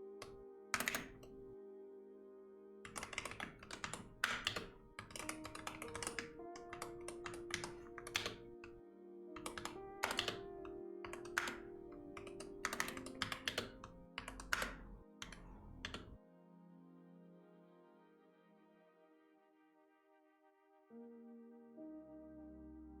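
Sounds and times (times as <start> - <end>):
soft background music: 0.0 - 23.0
keyboard typing: 0.2 - 1.5, 2.9 - 8.8, 9.4 - 16.2.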